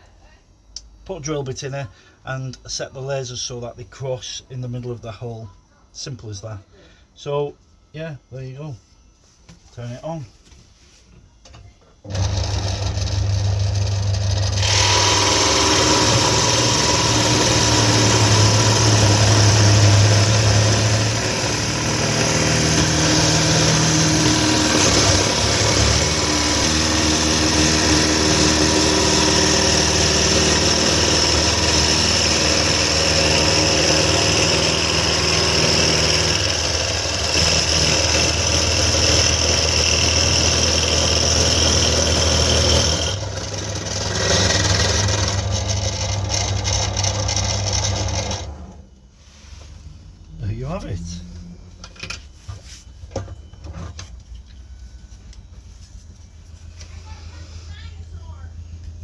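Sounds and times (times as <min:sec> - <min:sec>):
drill motor drilling wood: 0:12.1 - 0:48.8.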